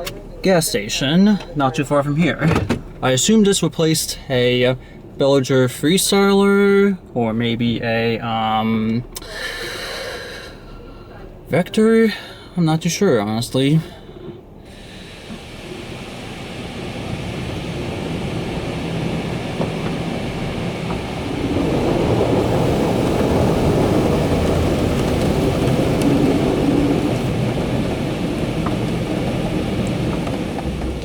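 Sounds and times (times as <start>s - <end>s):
car wash rushing noise: 13.2s - 31.0s.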